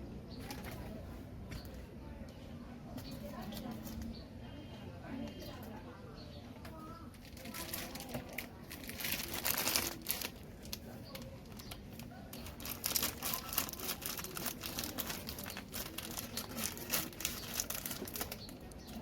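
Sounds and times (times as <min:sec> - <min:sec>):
people talking: 0:00.0 - 0:19.0
crinkling and rustling: 0:00.4 - 0:01.9, 0:06.7 - 0:19.0.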